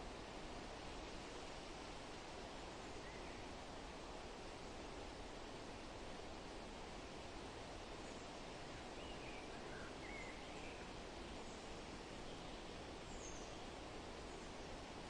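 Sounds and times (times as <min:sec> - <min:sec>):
wind rustling leaves: 0:00.0 - 0:15.0
faint bird chirps: 0:08.0 - 0:13.7.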